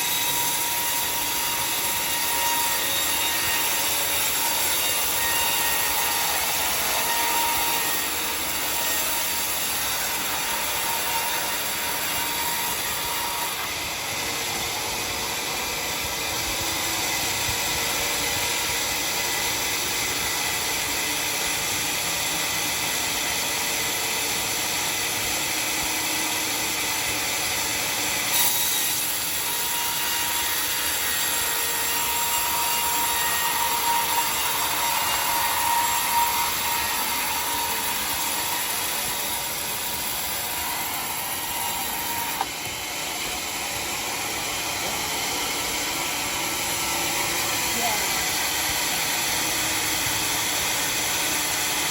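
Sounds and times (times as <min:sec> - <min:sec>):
sawmill blade cutting wood: 0:00.0 - 0:51.9.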